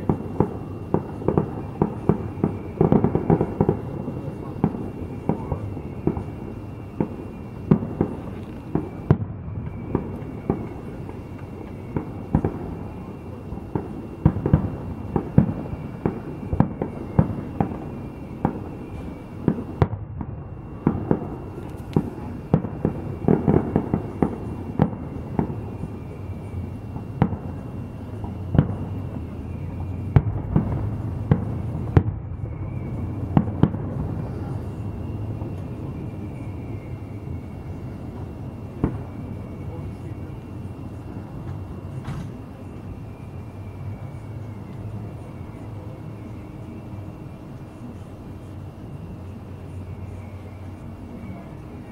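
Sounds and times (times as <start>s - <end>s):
rolling rumble: 0.0s - 39.8s
fireworks booming: 0.0s - 47.4s.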